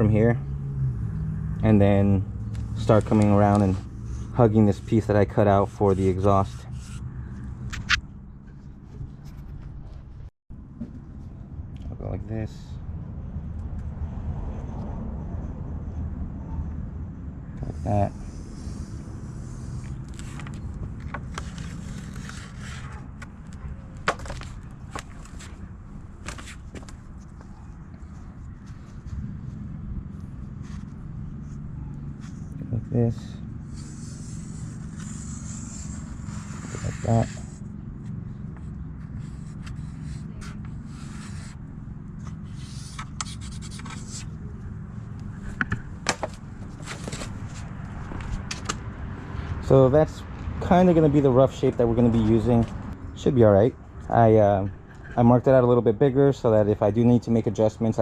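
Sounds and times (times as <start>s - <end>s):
marker scratching on sheet metal: 2.5s - 8.0s, 17.6s - 20.7s, 33.6s - 37.7s, 38.6s - 41.6s, 42.2s - 44.4s.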